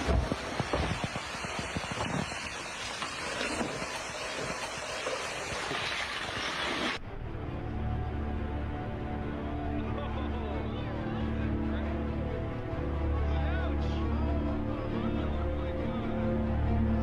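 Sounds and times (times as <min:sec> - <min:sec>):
rushing outdoor roar: 0:00.0 - 0:09.8.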